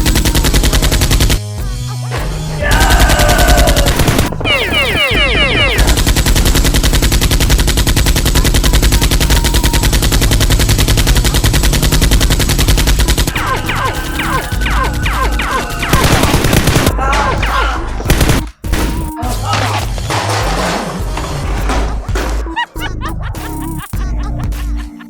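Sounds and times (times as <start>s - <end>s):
rapid automatic gunfire: 0.0s - 1.5s, 2.8s - 17.0s, 18.1s - 18.5s
falling whistling tones: 4.4s - 5.9s.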